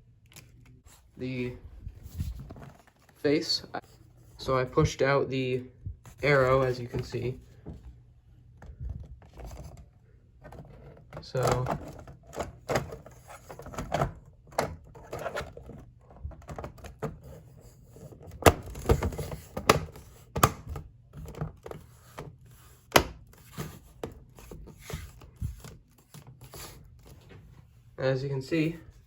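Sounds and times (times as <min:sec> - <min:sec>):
plastic parts clicking and knocking: 0:08.6 - 0:17.3, 0:18.2 - 0:22.3.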